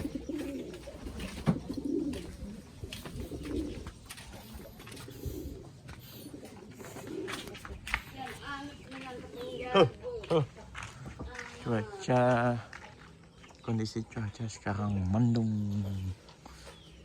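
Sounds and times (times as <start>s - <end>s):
pigeons cooing: 0.0s - 10.3s.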